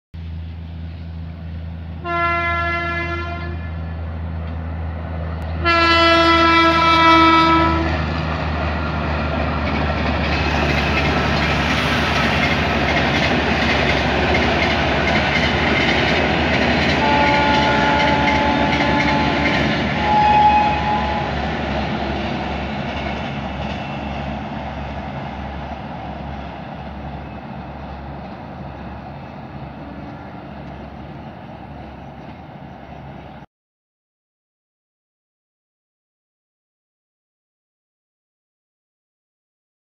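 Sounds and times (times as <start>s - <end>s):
train wheels rumbling on rails: 0.2s - 33.5s
train horn blasts: 2.0s - 3.9s, 5.5s - 8.1s, 16.9s - 21.4s, 29.7s - 30.8s.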